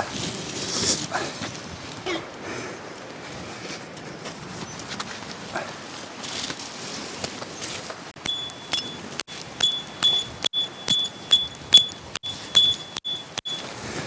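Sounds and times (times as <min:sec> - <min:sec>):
wind noise: 0:00.0 - 0:07.7
hammer on metal tent peg: 0:08.2 - 0:09.0, 0:09.6 - 0:13.6.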